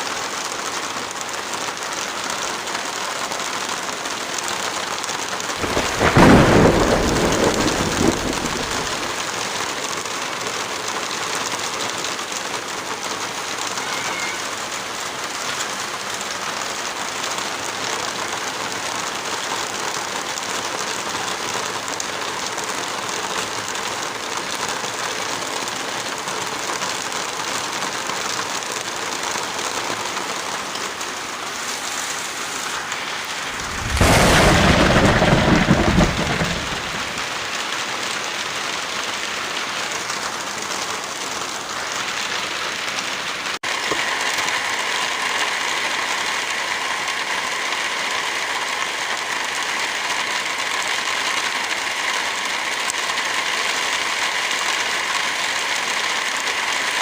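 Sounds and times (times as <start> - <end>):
heavy rain: 0.0 - 57.0
loud deep burst: 33.4 - 37.3.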